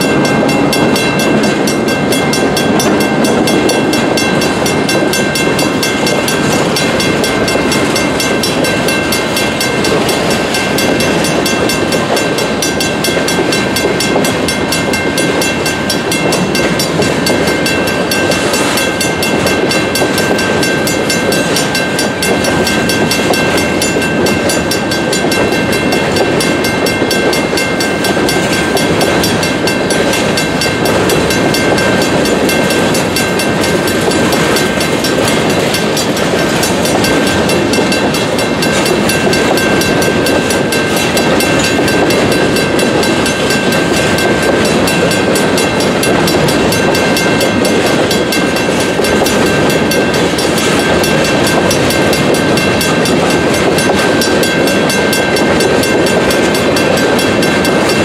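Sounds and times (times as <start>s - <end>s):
mechanical crossing bell ringing: 0.0s - 58.0s
train wheels clacking over rails: 0.0s - 58.0s.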